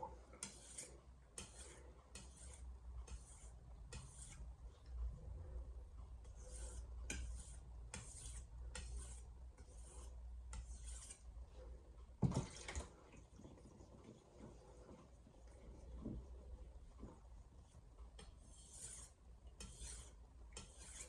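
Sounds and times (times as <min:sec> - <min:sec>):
knife scraping on whetstone: 0:00.4 - 0:04.4, 0:06.2 - 0:11.3, 0:18.2 - 0:21.0.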